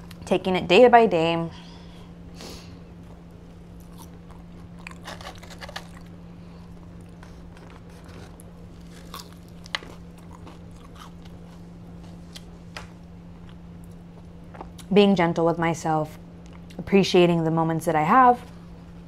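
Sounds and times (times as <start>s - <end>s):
steady low hum: 0.0s - 19.0s
chewing and crunching food: 3.0s - 14.9s.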